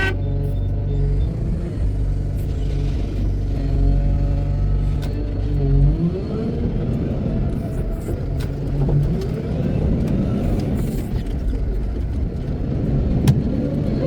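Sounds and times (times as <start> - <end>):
diesel engine revving: 0.0 - 11.2.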